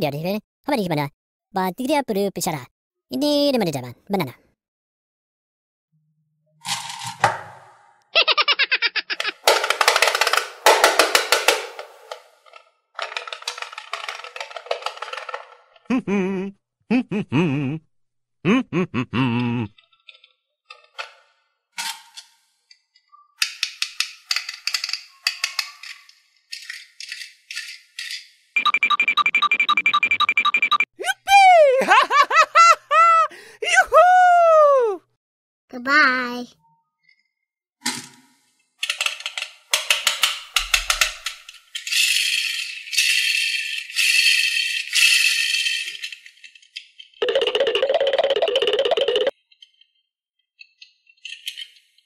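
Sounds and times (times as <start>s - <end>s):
plastic toy clicks and clatters: 9.2s - 15.9s, 23.4s - 28.4s, 38.8s - 49.8s
plastic scraping: 9.3s - 15.8s
beads rattling in metal tin: 9.4s - 15.6s.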